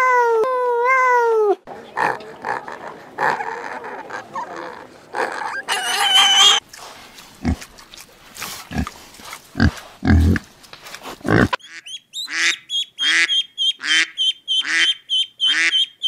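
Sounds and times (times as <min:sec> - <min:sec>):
pig squealing: 0:02.0 - 0:06.6
pigs grunting: 0:02.0 - 0:07.7, 0:08.4 - 0:10.5, 0:11.1 - 0:11.6.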